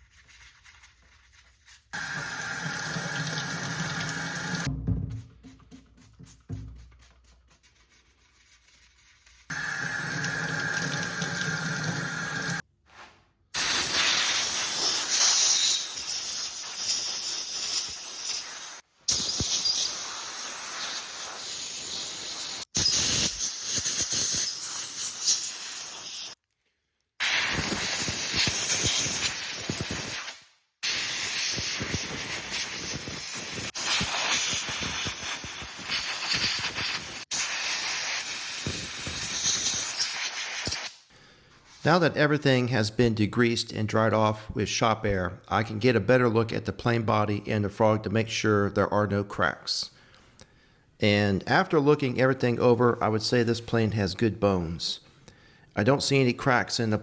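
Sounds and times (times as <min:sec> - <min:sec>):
compressed air spray hissing: 0:13.6 - 0:26.4, 0:27.2 - 0:41.1.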